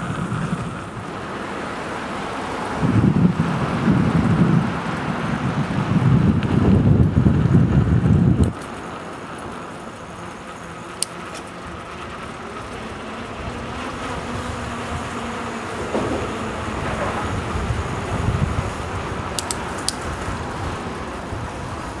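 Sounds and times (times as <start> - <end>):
distant traffic hum: 0.0 - 22.0
wind buffeting microphone: 0.0 - 22.0
sharp click: 19.4 - 20.0.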